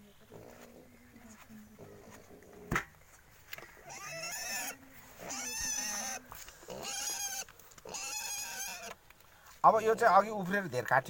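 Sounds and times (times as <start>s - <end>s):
pig squealing: 3.8s - 9.0s.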